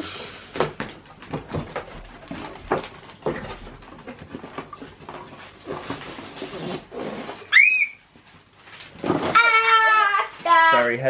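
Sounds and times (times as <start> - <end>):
cardboard packaging crackling: 0.5 - 10.7
short high squeal: 7.4 - 8.0.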